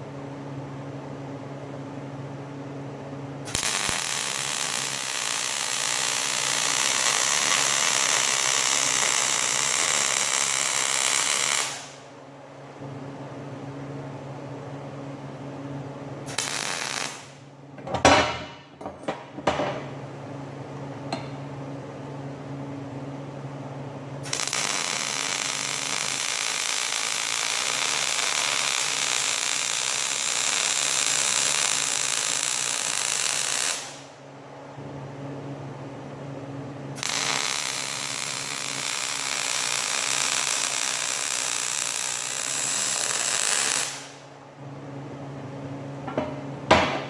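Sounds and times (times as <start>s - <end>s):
metal clanks: 17.8s - 19.9s, 46.1s - 47.0s.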